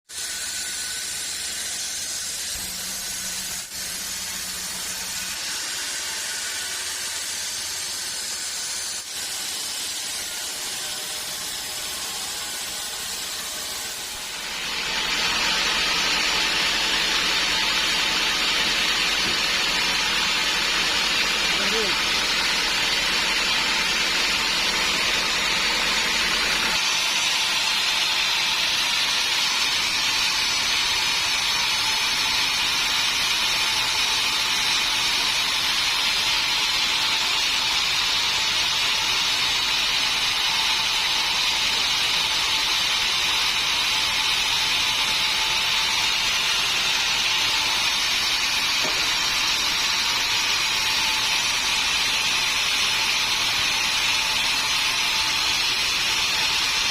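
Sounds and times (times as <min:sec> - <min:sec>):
sawmill saw whining: 0:00.0 - 0:56.9.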